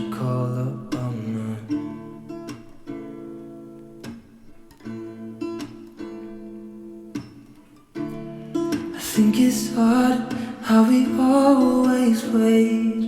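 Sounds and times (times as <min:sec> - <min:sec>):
person singing a ballad: 0:00.0 - 0:02.0, 0:08.9 - 0:13.0
acoustic guitar strumming chords: 0:00.0 - 0:13.0.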